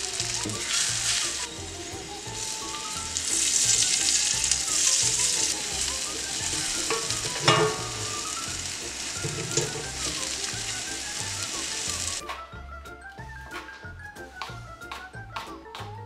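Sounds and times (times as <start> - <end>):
food sizzling in skillet: 0.0 - 12.2
spatula scraping pan: 2.7 - 8.5, 9.1 - 10.7
spatula knocking pan: 6.4 - 8.5, 9.1 - 10.8.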